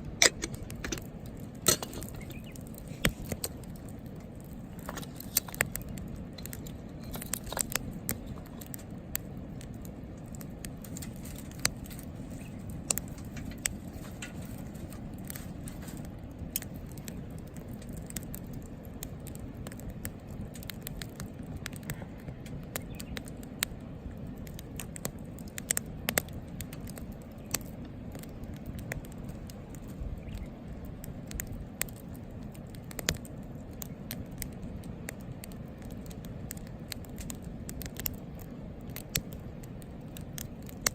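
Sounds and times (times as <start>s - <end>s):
low fire rumble: 0.0s - 40.9s
wood fire crackling and popping: 0.0s - 40.9s.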